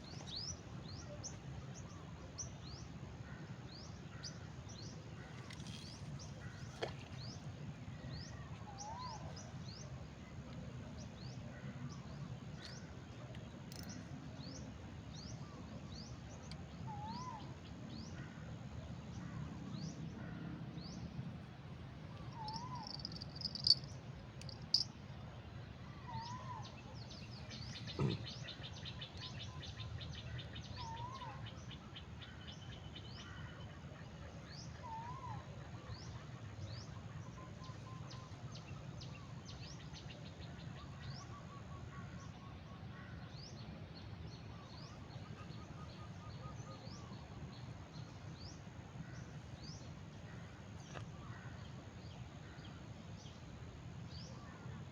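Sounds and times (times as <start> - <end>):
high rising bird chirps: 22.4 - 23.9
rapid bird trills: 22.4 - 23.9.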